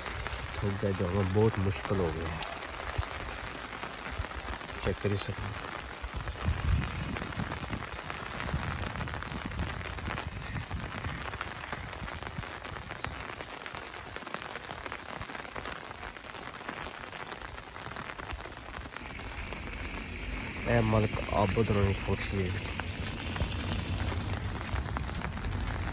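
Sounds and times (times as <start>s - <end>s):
rain on hard surfaces: 0.0s - 25.9s
low rumble: 19.0s - 25.9s.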